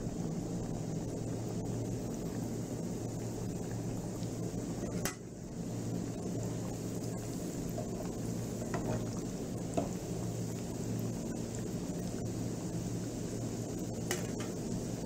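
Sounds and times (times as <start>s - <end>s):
pastries sizzling in hot oil: 0.8s - 15.0s.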